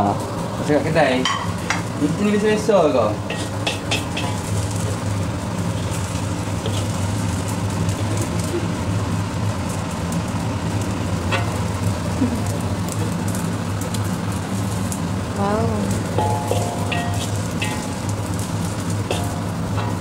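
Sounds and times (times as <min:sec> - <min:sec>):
rice sizzling in a wok: 0:00.0 - 0:20.0
steady low hum: 0:00.0 - 0:20.0
spatula and ladle stirring: 0:03.3 - 0:04.6, 0:05.7 - 0:07.0, 0:16.1 - 0:20.0.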